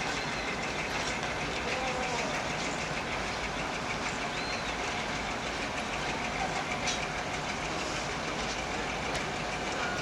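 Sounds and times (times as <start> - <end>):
train coaches rumbling past: 0.0 - 10.0
wheels clacking over rail joints: 0.0 - 10.0.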